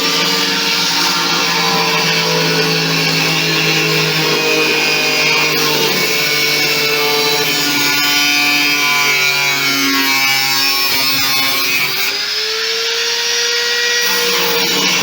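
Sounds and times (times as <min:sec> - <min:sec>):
angle grinder cutting sheet steel: 0:00.0 - 0:15.0.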